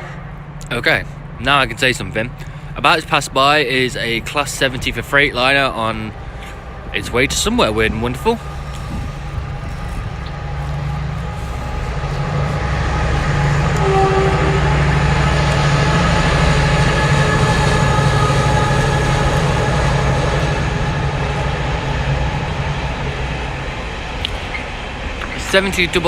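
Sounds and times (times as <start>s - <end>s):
locomotive engine drone: 0.0s - 26.0s
wheel and rail noise: 0.0s - 26.0s.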